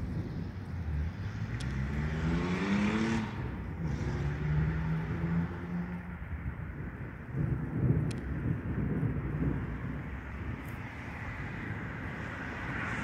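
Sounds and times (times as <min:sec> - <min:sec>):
car engine accelerating: 0:00.9 - 0:06.1.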